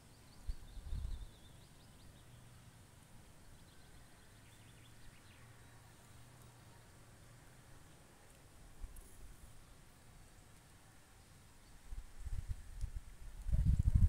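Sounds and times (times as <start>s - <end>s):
faint bird chirps: 0.0s - 2.7s, 3.4s - 6.9s.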